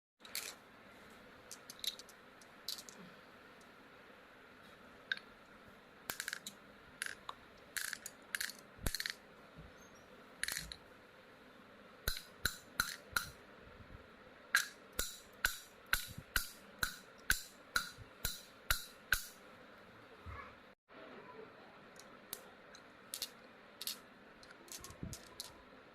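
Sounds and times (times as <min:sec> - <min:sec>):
stone striking metal balls: 0:06.1 - 0:09.2, 0:10.4 - 0:10.8, 0:12.1 - 0:13.4, 0:14.6 - 0:19.4, 0:23.1 - 0:25.6.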